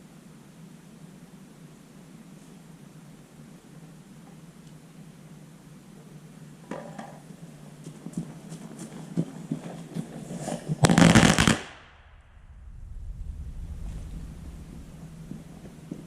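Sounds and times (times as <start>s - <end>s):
firecrackers popping: 10.3s - 16.0s.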